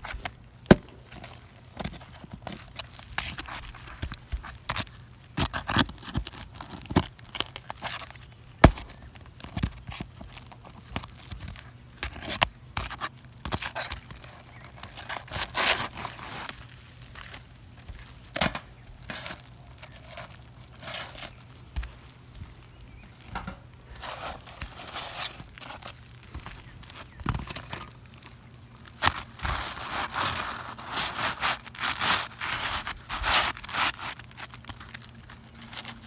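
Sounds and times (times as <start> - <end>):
tools scraping and tearing shingles: 0.0 - 21.4, 23.9 - 26.4, 29.0 - 36.0.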